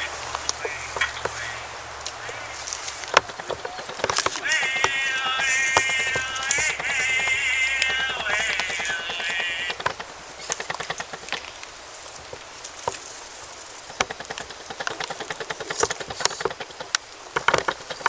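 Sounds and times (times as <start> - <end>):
low hiss: 0.0 - 18.0
music with singing: 4.3 - 9.8.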